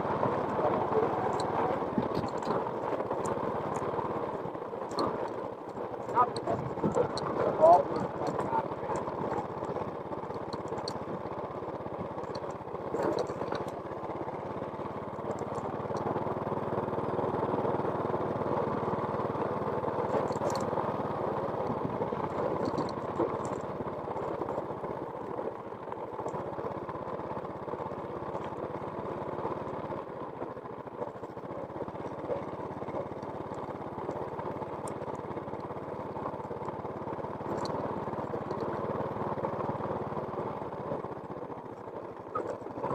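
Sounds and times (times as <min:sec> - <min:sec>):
small engine running: 0:00.0 - 0:42.9
faint clicks and rattles: 0:00.2 - 0:16.2, 0:20.0 - 0:20.7, 0:21.6 - 0:28.9, 0:30.0 - 0:39.8.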